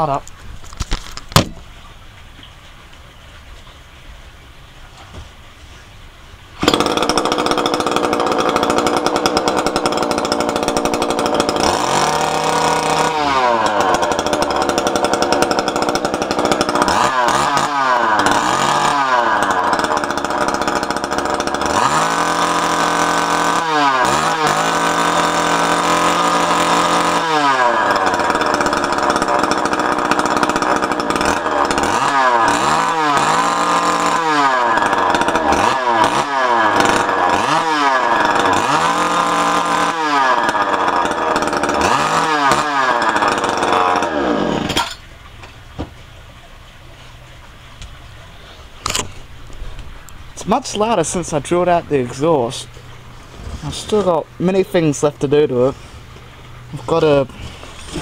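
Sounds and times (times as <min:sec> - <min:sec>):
line trimmer engine revving: 0:06.6 - 0:45.0, 0:50.4 - 0:55.9, 0:56.5 - 0:58.0.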